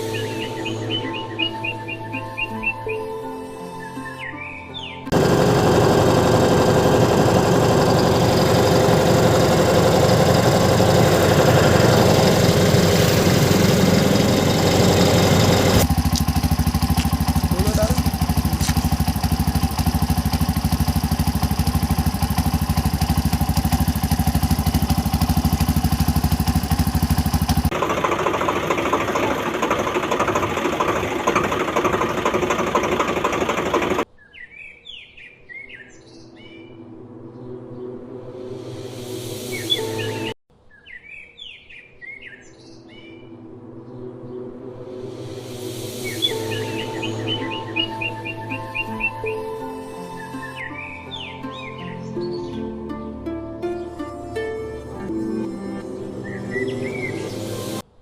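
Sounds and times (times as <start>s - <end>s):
bird chirps: 0.0s - 3.2s, 34.1s - 36.7s, 39.5s - 43.2s, 46.0s - 52.7s
vehicle engine running: 5.1s - 34.1s, 45.9s - 49.2s.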